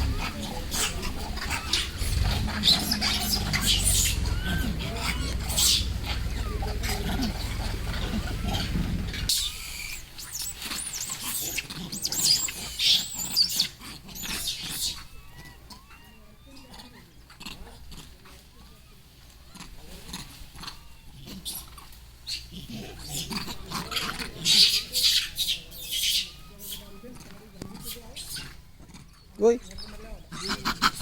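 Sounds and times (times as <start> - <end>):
low rumble: 0.0 - 9.3
monkey shrieking: 0.0 - 31.0.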